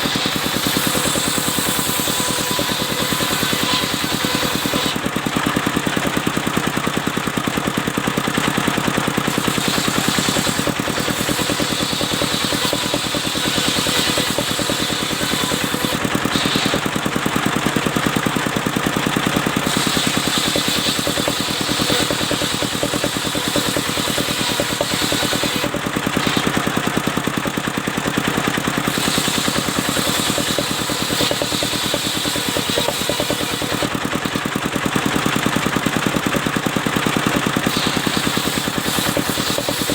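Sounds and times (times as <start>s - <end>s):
saw blade hissing in wood: 0.0s - 5.0s, 9.3s - 16.9s, 19.6s - 26.6s, 28.9s - 34.0s, 37.6s - 39.9s
engine pulse: 0.0s - 39.9s.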